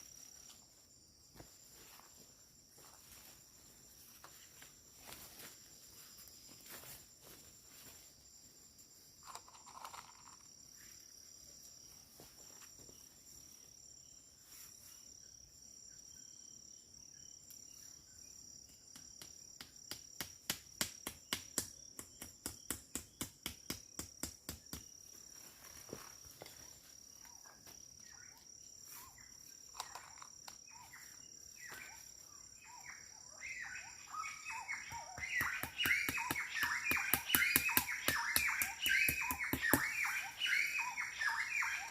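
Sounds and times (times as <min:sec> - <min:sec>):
insects chirring: 0:00.0 - 0:41.9
birds chirping: 0:27.3 - 0:41.9.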